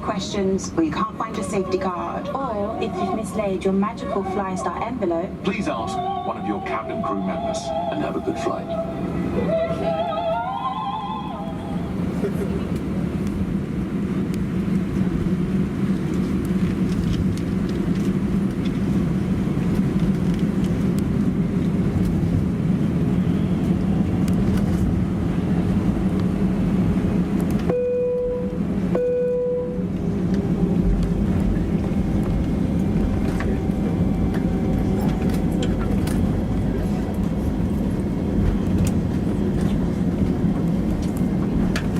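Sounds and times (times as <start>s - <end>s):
aircraft cabin engine hum: 0.0s - 41.9s
short cabin tones: 27.6s - 36.3s.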